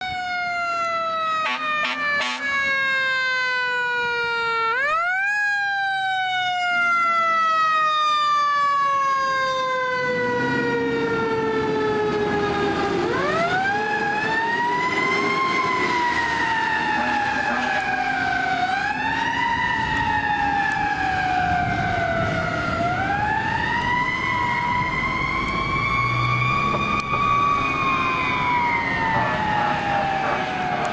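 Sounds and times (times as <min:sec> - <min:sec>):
fire engine siren wailing: 0:00.0 - 0:30.9
truck engine rumbling: 0:09.9 - 0:30.9.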